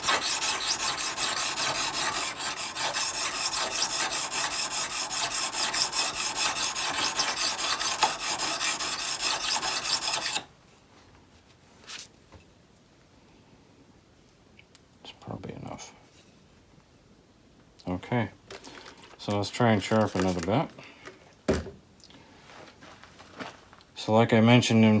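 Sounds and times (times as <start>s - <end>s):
chisel scraping on whetstone: 0.0s - 10.5s.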